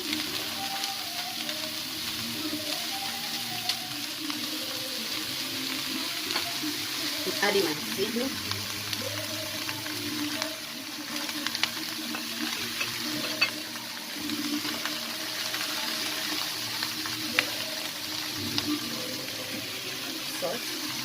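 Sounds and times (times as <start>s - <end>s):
vegetables sizzling in oil: 0.0s - 21.0s
stirring clinks: 12.4s - 13.6s.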